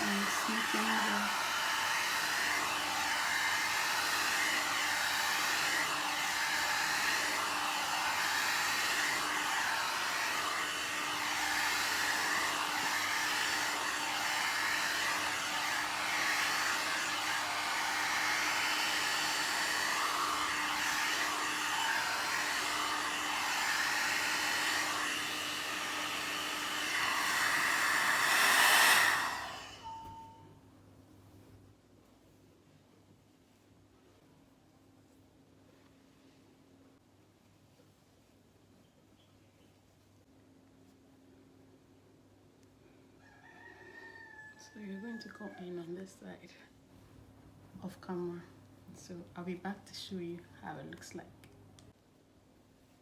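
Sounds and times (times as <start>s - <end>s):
hot-air brush dryer running: 0.0s - 30.3s.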